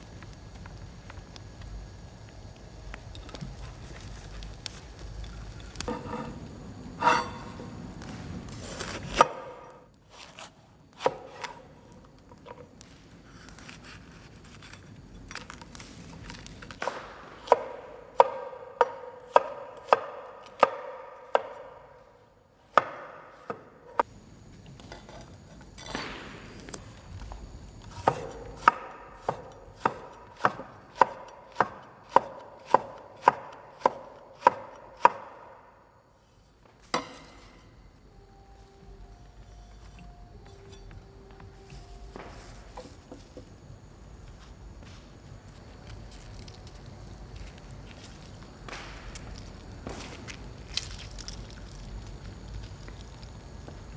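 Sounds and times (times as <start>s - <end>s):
knife chopping on cutting board: 7.0s - 7.6s, 8.5s - 11.7s, 16.8s - 22.0s, 22.7s - 24.0s, 27.9s - 35.5s.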